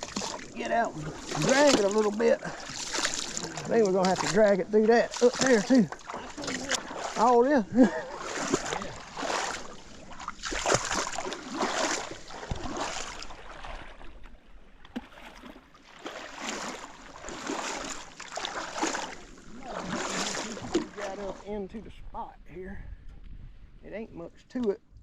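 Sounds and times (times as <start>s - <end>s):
paddle splashing water: 0.0s - 21.7s
knocks against canoe hull: 12.4s - 12.8s.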